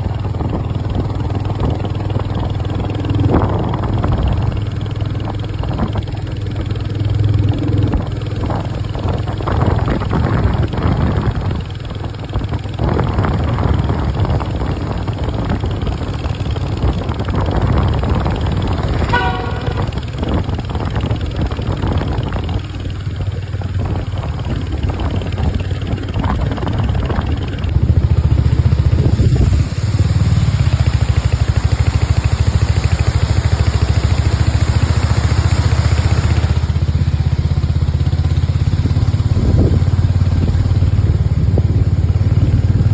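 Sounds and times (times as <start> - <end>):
vehicle engine running: 0.0 - 42.9
horn toot: 18.2 - 20.8.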